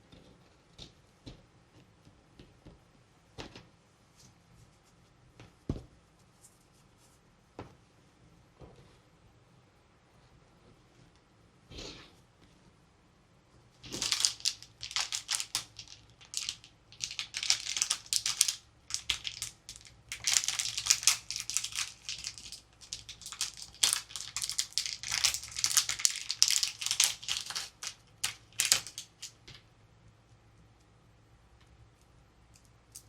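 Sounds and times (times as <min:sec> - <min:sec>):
plastic packaging crinkling: 0:13.8 - 0:29.4.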